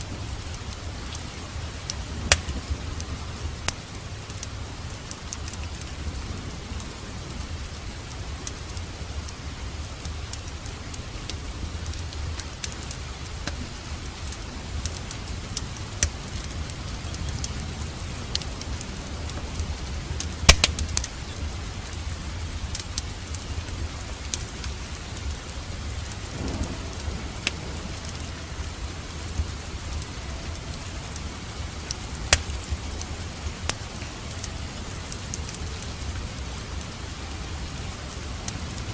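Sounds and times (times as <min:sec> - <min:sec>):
sharp crackles: 0:00.0 - 0:38.9
steady rain: 0:00.0 - 0:38.9
low rumble: 0:13.1 - 0:35.0.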